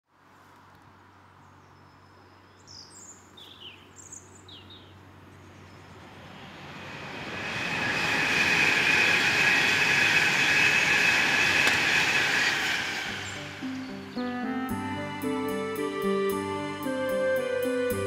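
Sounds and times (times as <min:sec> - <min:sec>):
electric train passing: 0:05.0 - 0:18.0
high whine: 0:06.0 - 0:18.0.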